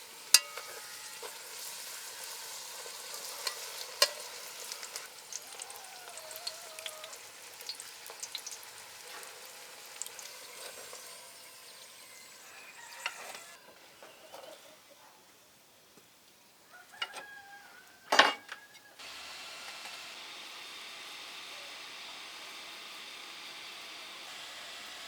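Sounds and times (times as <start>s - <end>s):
oil crackling and popping: 0.0s - 13.5s
deep-frying sizzle: 0.0s - 13.6s, 19.0s - 25.0s.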